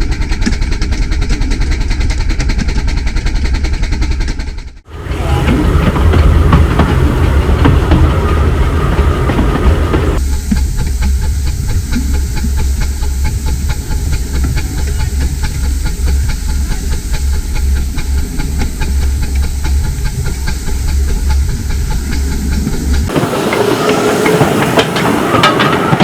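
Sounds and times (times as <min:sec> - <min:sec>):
steam hiss: 0:04.9 - 0:10.2, 0:12.2 - 0:26.0
miniature steam train running: 0:04.9 - 0:26.0.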